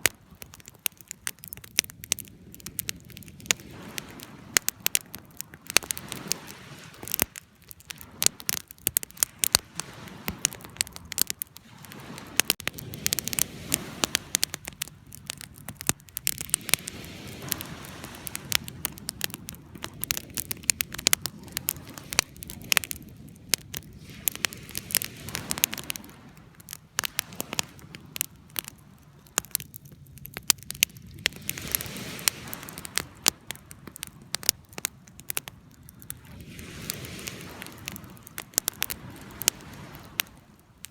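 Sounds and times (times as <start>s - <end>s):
campfire crackling and popping: 0.0s - 40.9s
low rush of flame: 0.0s - 40.9s.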